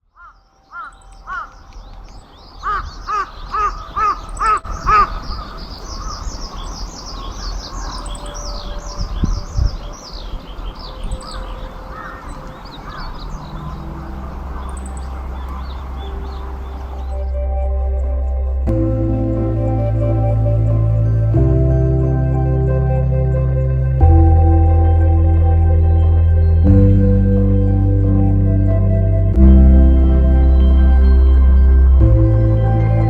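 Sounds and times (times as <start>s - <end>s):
crow cawing: 0.2s - 1.6s, 11.9s - 14.7s.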